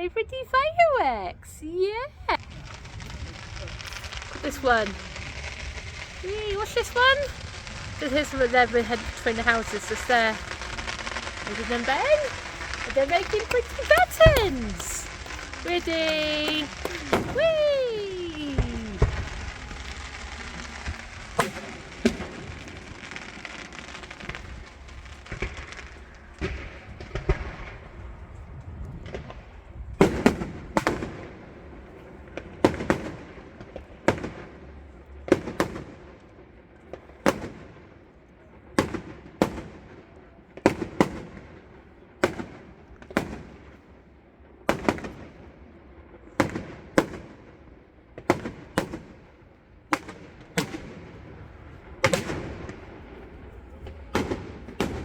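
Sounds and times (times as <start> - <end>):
firework shells bursting: 2.1 - 28.0.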